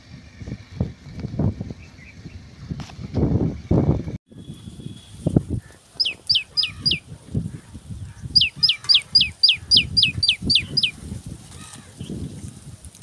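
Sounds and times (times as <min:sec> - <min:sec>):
bird whistling descending notes: 0:06.0 - 0:07.0, 0:08.4 - 0:11.0.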